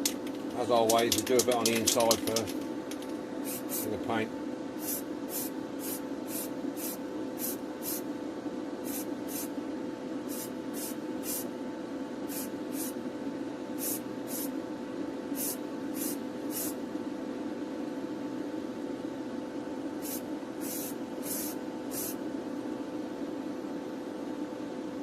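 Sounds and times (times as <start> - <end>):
extractor fan humming: 0.0 - 25.0
spray can hissing: 3.4 - 3.9, 4.8 - 8.0, 8.9 - 9.5, 10.3 - 11.5, 12.3 - 13.0, 13.8 - 14.5, 15.4 - 16.8, 20.0 - 22.2.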